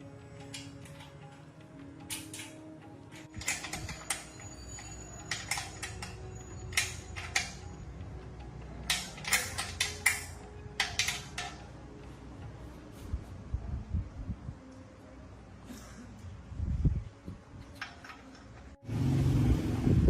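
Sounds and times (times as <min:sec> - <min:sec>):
metal tools clinking: 0:03.2 - 0:07.8, 0:08.8 - 0:11.7.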